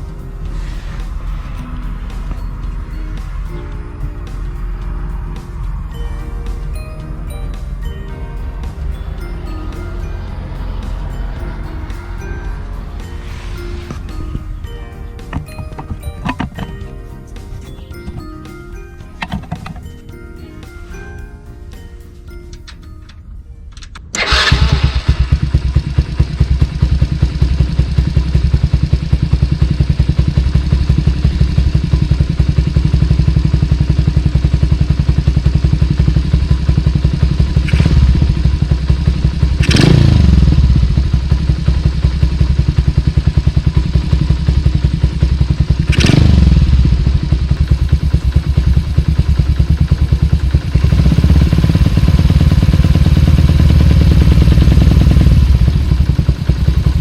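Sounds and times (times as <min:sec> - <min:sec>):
motorcycle engine idling: 0:24.2 - 0:57.0.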